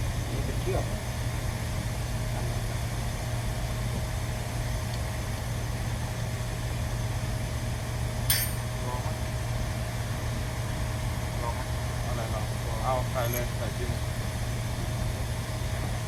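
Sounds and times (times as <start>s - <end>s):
sharp click: 8.3s - 8.6s.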